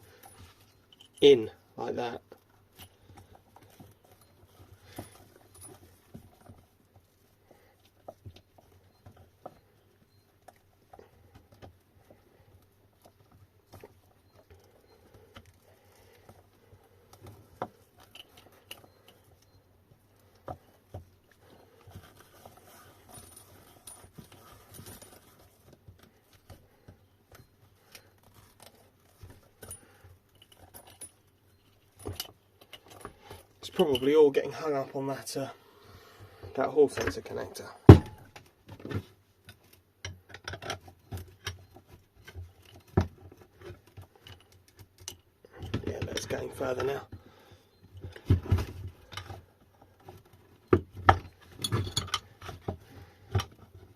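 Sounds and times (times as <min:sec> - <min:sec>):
hands handling wires: 0:00.0 - 0:35.5.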